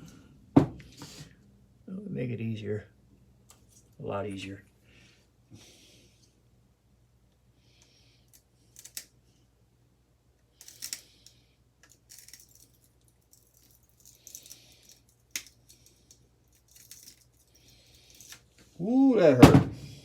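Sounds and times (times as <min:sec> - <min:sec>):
metal parts clinking and scraping: 0:10.6 - 0:11.1, 0:11.8 - 0:18.6.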